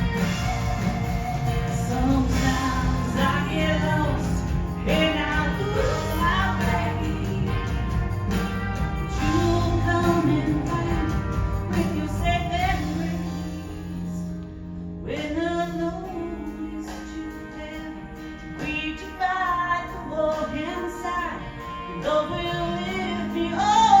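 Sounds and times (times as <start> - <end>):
woman singing: 0.0 - 14.3, 15.0 - 24.0
instrumental accompaniment: 0.0 - 15.0.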